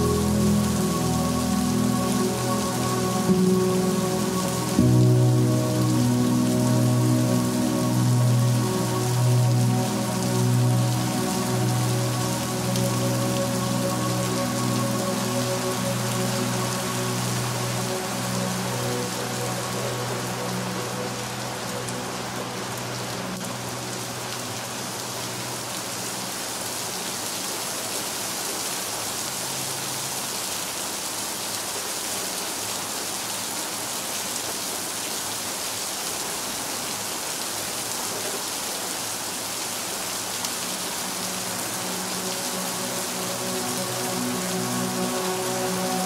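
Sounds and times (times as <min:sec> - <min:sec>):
low held musical tones: 0:00.0 - 0:26.3, 0:40.4 - 0:46.0
dense rain falling: 0:00.0 - 0:46.0.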